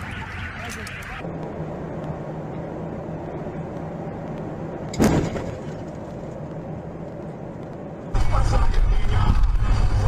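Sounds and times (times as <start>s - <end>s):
car running with road noise: 0.0s - 10.0s
loud thump: 5.0s - 5.6s.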